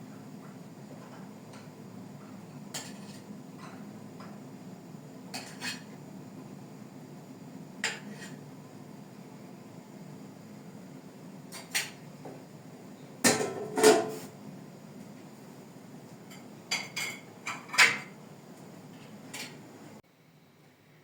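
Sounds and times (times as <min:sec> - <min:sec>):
steady low hum: 0:00.0 - 0:21.0
kitchenware clinking: 0:05.4 - 0:05.9, 0:13.3 - 0:14.2, 0:16.3 - 0:18.2.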